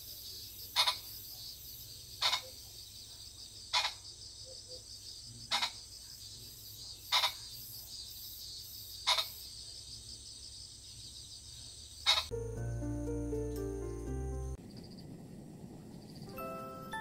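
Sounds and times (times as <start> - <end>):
crickets and insects chirping: 0.0 - 16.9
music: 12.3 - 14.6, 16.3 - 17.0.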